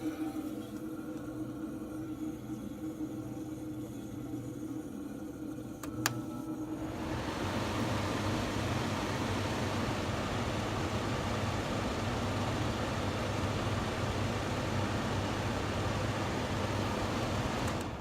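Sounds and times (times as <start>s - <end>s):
compressor low hum: 0.0s - 18.0s
fan air rush: 3.7s - 18.0s.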